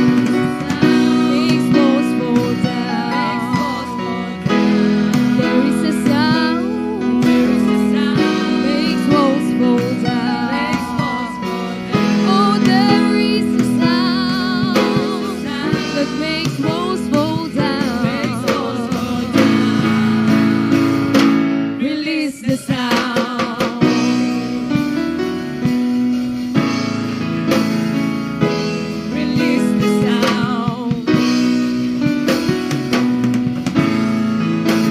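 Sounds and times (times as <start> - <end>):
group singing worship song: 0.0 - 24.8, 28.9 - 31.4
guitar and band accompaniment: 0.0 - 34.9.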